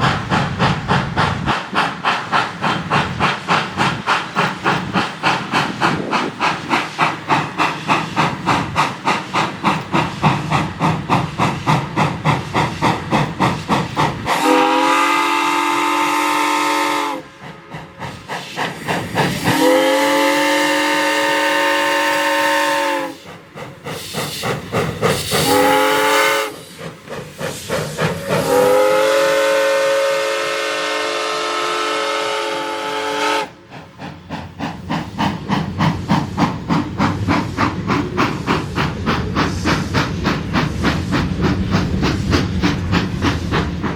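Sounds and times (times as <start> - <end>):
steam locomotive exhaust chuffs: 0.0 - 43.9
steam whistle blasts: 14.3 - 17.3, 19.4 - 23.3, 25.4 - 26.6, 28.2 - 33.6.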